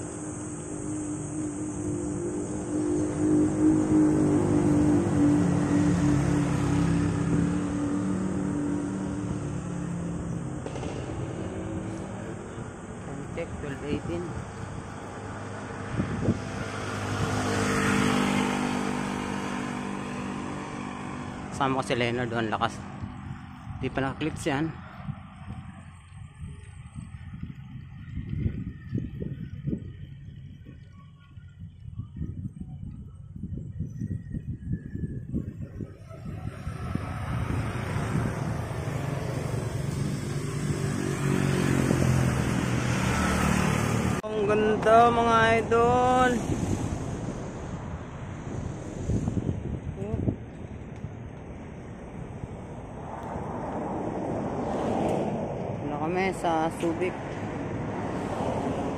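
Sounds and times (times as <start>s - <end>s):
vehicle passing by: 0.0s - 30.9s, 34.4s - 58.9s
wind noise on microphone: 0.0s - 58.9s.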